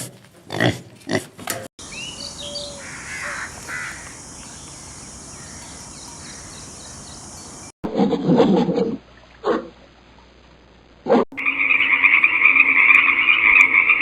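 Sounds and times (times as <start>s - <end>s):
bird rasping calls: 1.8s - 7.7s
insects hissing: 1.8s - 7.7s.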